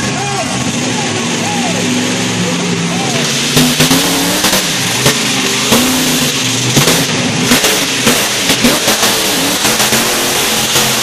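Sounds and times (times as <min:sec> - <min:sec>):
large engine revving: 0:00.0 - 0:11.0
sharp exhaust cracks: 0:02.0 - 0:11.0.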